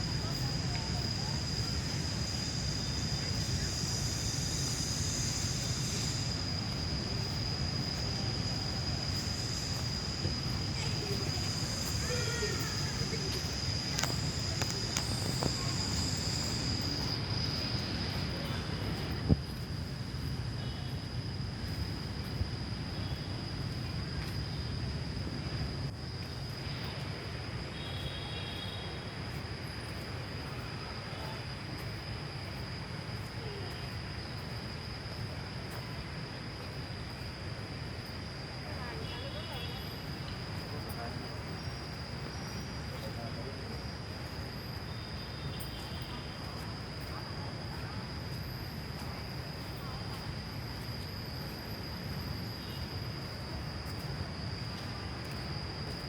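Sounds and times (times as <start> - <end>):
insects shrilling: 0.0 - 19.1.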